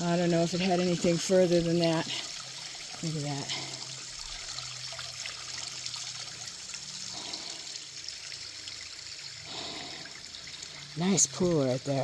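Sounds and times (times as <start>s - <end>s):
creek water trickling over rocks: 0.0s - 12.0s.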